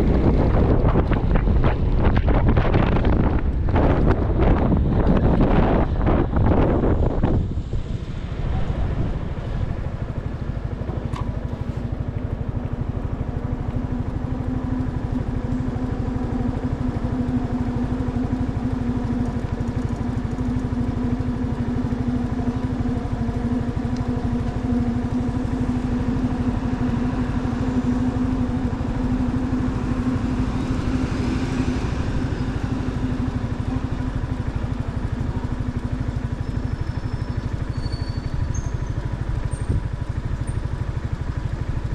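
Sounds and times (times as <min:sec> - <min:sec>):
motorcycle engine running at low revs: 0:00.0 - 0:41.9.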